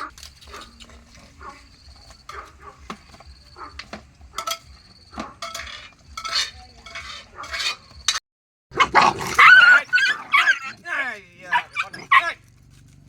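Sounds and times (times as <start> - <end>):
dishes clinking and knocking: 2.0 - 8.2.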